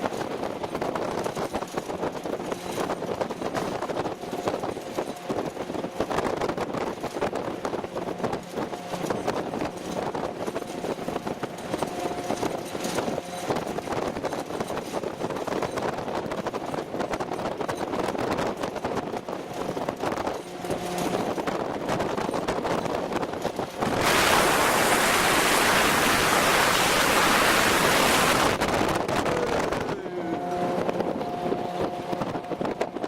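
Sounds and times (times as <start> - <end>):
vehicle rattling and clanking: 0.0 - 25.6
vehicle engine drone: 20.2 - 33.0.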